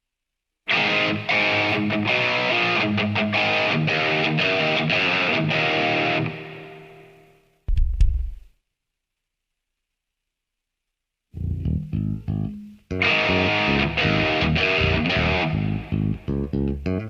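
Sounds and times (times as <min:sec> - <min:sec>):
distorted electric guitar chords: 0:00.7 - 0:07.4, 0:11.4 - 0:17.0.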